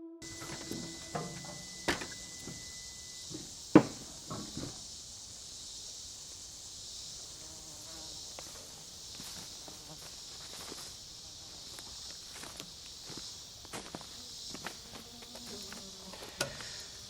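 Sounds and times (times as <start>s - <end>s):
insect chorus drone: 0.2s - 17.0s
sharp knocks: 3.3s - 4.8s.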